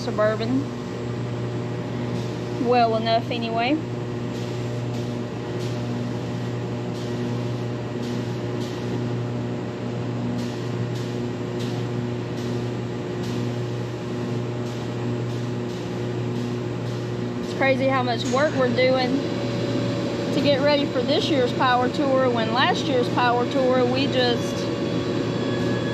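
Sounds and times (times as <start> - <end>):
electric motor hum: 0.0 - 25.9.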